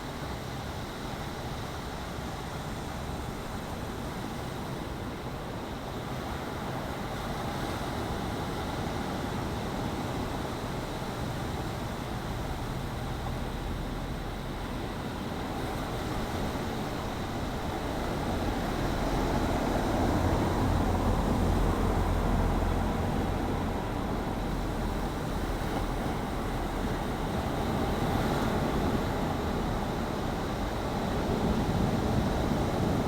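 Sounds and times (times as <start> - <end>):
sea waves washing and rushing: 15.0 - 33.0.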